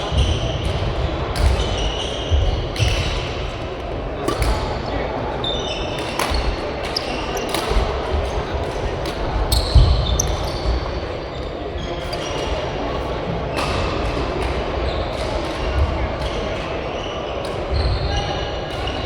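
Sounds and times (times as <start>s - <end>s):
shoes squeaking on court floor: 0.0s - 8.0s, 9.4s - 13.0s
racket hitting shuttlecock: 4.2s - 4.8s, 5.9s - 10.4s.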